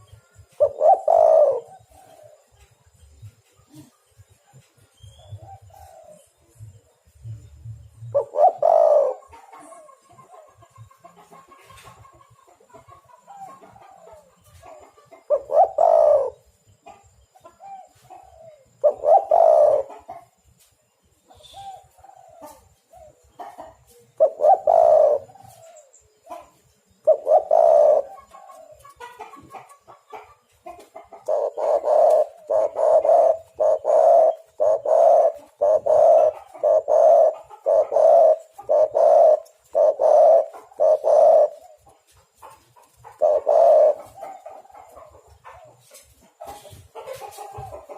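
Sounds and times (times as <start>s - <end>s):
dove cooing: 0.0s - 2.6s, 5.2s - 6.3s, 8.0s - 10.0s, 15.2s - 16.5s, 17.6s - 20.3s, 21.3s - 30.3s, 31.0s - 42.2s, 42.8s - 47.9s.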